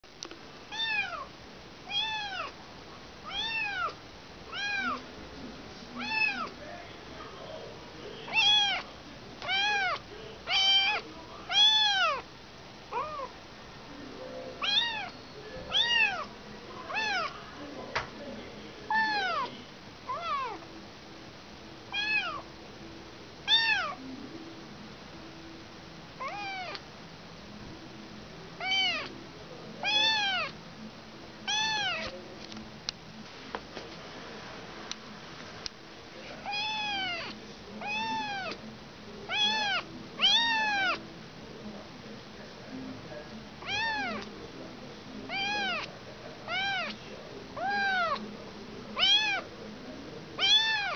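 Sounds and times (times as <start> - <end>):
kitten meowing: 0.7 - 1.3, 1.9 - 2.6, 3.2 - 5.0, 6.0 - 6.5, 8.3 - 8.8, 9.4 - 12.2, 12.9 - 13.3, 14.6 - 16.3, 16.9 - 17.3, 18.9 - 19.5, 20.1 - 20.6, 21.9 - 22.4, 23.5 - 24.0, 26.2 - 26.8, 28.6 - 29.1, 29.8 - 30.6, 31.5 - 32.1, 36.4 - 38.6, 39.3 - 41.0, 43.6 - 44.3, 45.3 - 45.9, 46.5 - 47.0, 47.6 - 48.2, 49.0 - 49.4, 50.4 - 50.9.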